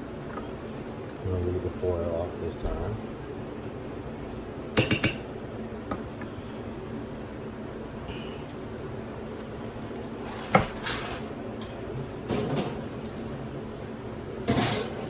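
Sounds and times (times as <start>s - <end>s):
cookware clanking: 4.8s - 5.3s.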